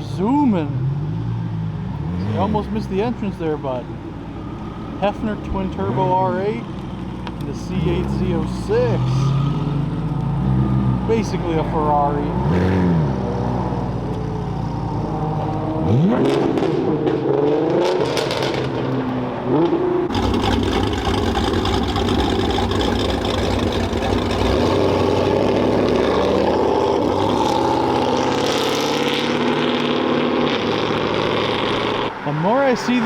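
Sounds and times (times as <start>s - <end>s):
car engines revving: 0.0s - 33.0s
steady engine rumble: 20.0s - 29.6s.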